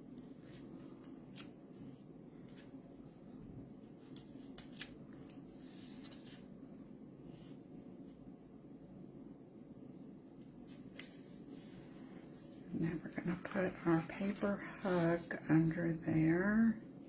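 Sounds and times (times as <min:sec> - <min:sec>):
paper crinkling and rustling: 0:00.2 - 0:06.6, 0:10.5 - 0:15.4.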